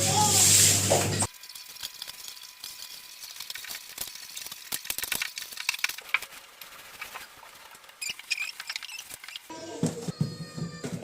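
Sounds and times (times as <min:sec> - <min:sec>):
small hard objects clicking: 0:01.7 - 0:06.3, 0:07.9 - 0:09.5.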